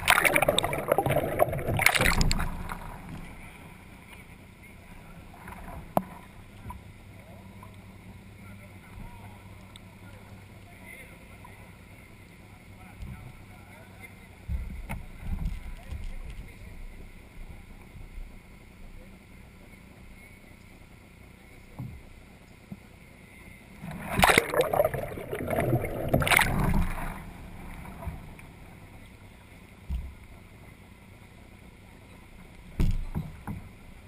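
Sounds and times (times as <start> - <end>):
water splashing and rushing: 0.0 - 3.7, 23.8 - 28.9.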